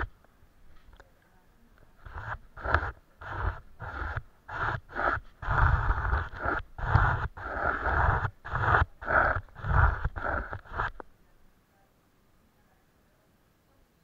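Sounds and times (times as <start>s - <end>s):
paintbrush strokes on paper: 1.6s - 11.1s.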